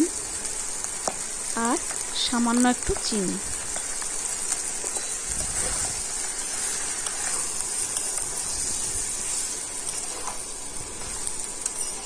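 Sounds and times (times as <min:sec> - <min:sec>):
meat sizzling in oil: 0:00.0 - 0:12.0
spatula stirring: 0:03.6 - 0:12.0.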